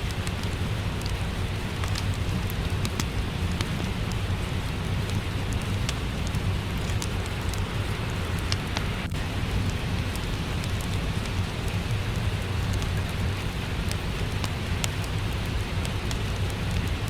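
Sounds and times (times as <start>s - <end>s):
steady rain: 0.0s - 17.0s
wood fire crackling: 0.0s - 17.0s.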